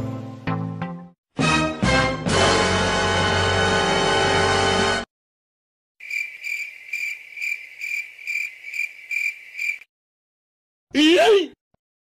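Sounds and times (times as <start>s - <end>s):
crickets chirping: 6.0s - 9.9s.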